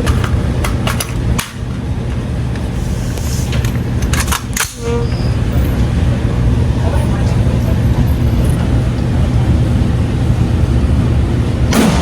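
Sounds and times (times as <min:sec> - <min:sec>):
steady low rumble: 0:00.0 - 0:12.0
gunshots: 0:11.7 - 0:12.0.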